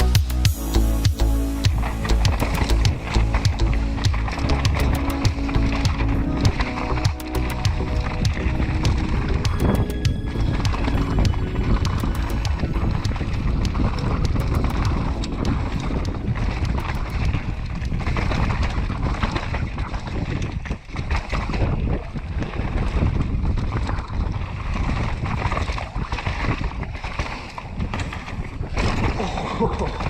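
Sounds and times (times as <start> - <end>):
wind rushing over microphone: 0.0 - 30.0
bike clicks and rattles: 11.8 - 19.5.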